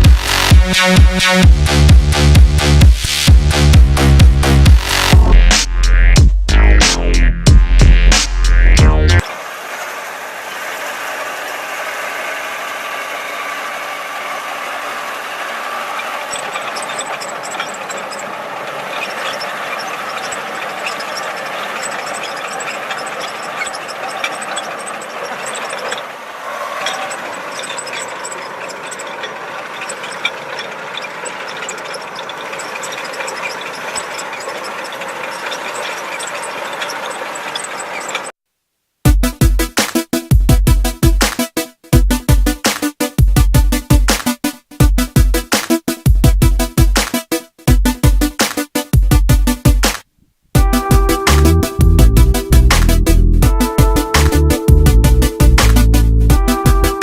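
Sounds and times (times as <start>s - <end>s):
machine running steadily: 0.0s - 5.9s, 6.5s - 38.3s, 50.6s - 57.0s.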